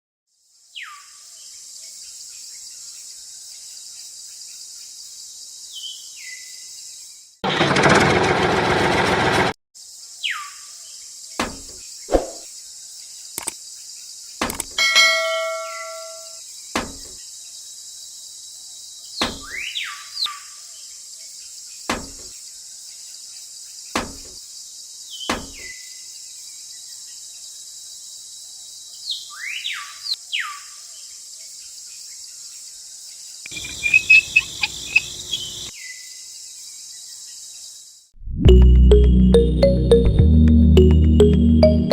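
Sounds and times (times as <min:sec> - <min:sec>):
insects droning: 0:09.8 - 0:38.1
bird calls sweeping down: 0:12.1 - 0:12.5, 0:33.5 - 0:35.6
sharp clicks: 0:13.4 - 0:13.6, 0:14.4 - 0:14.8.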